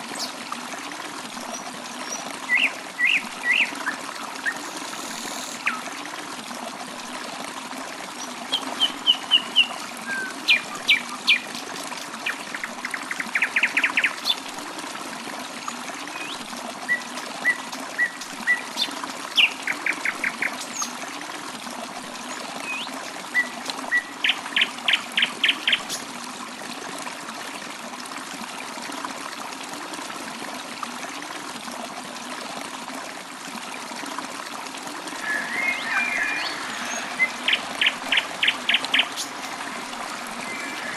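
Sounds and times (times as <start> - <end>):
trickle of running water: 0.0 - 40.9
birds chirping: 35.0 - 40.9.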